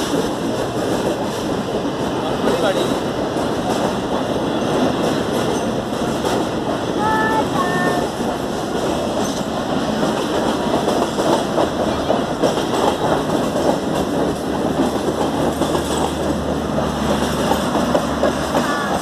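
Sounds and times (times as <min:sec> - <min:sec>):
train wheels rumbling on rail: 0:00.0 - 0:19.0
wheels clattering over rail joints: 0:08.2 - 0:19.0.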